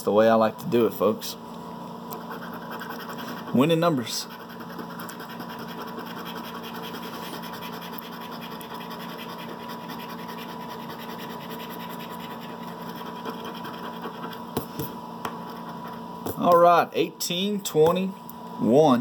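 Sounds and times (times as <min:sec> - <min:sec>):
scratching coating off a ticket: 0:02.2 - 0:14.4.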